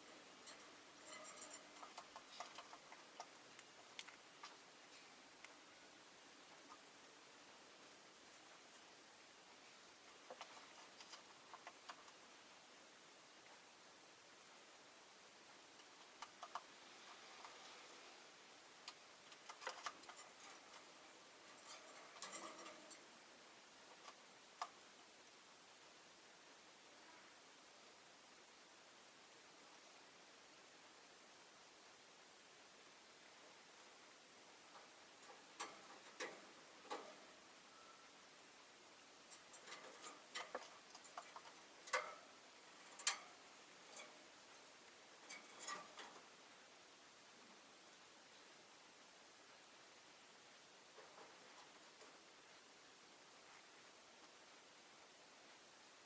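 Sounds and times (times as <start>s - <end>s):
bird clicks and ticks: 0.0s - 4.6s, 10.2s - 12.3s, 15.7s - 17.6s, 18.8s - 23.2s, 23.9s - 25.4s, 34.7s - 37.4s, 39.2s - 46.4s
faint hiss: 0.0s - 56.0s.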